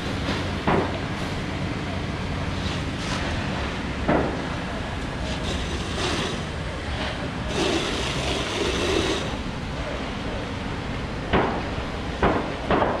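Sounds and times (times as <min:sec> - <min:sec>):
low mechanical rumble: 0:00.0 - 0:12.8
hiss: 0:05.2 - 0:09.4.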